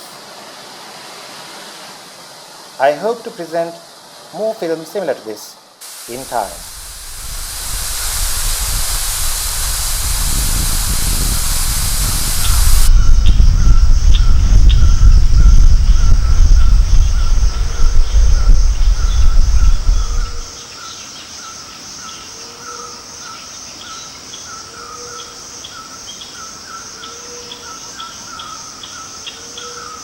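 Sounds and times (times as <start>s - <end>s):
pulsing insect drone: 5.8s - 20.6s
loud low rumbling: 6.2s - 20.5s.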